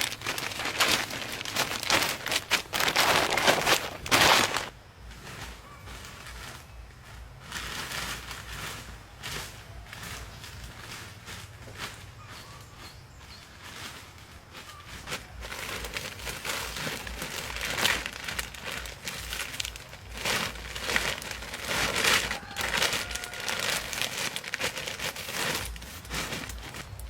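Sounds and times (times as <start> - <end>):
material crinkling and rustling: 0.0 - 6.8, 7.5 - 27.0.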